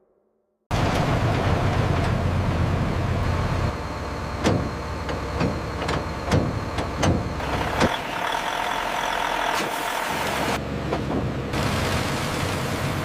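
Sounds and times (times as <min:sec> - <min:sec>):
wood chipper running: 0:00.7 - 0:13.0
wood knocking in chipper: 0:04.4 - 0:13.0.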